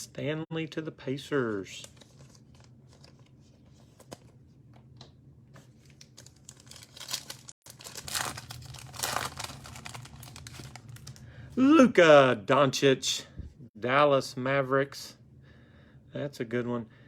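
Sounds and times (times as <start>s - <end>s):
wrapper tearing and crinkling: 5.7s - 11.2s.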